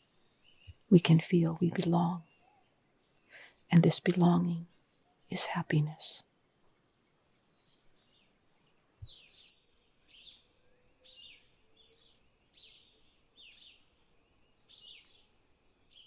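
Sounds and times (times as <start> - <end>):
faint bird chirps: 0.0 - 6.3, 7.2 - 16.0.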